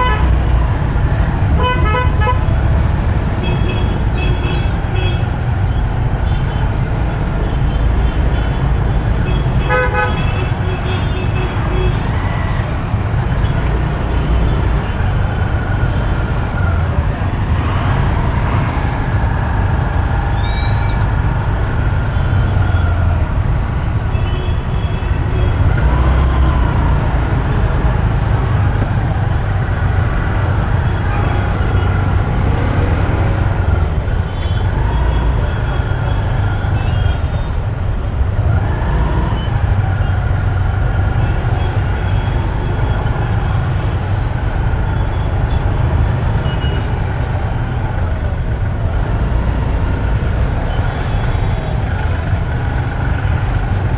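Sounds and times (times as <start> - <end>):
traffic rumble: 0.0 - 53.9.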